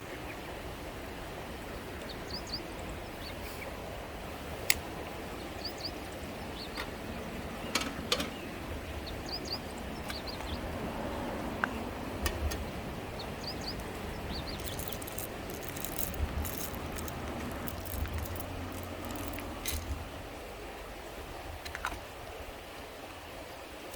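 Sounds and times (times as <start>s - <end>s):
small birds chirping: 1.9s - 3.8s, 4.6s - 10.7s, 12.6s - 20.1s
steady background rush: 13.3s - 20.0s
dry crunchy clicks: 14.4s - 20.0s.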